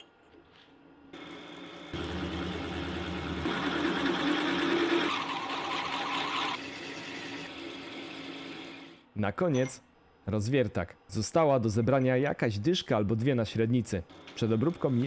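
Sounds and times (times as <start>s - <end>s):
milling machine spindle running: 1.2s - 9.0s
drill cutting into metal: 1.9s - 8.9s.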